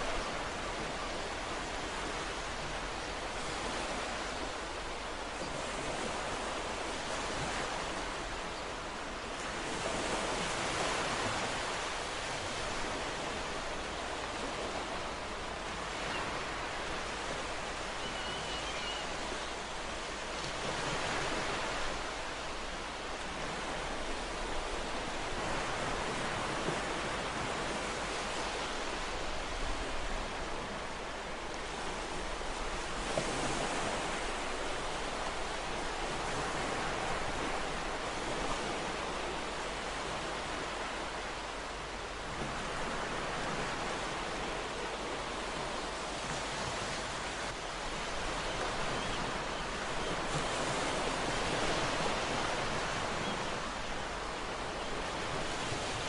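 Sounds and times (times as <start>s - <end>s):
ocean waves breaking: 8.9s - 56.0s.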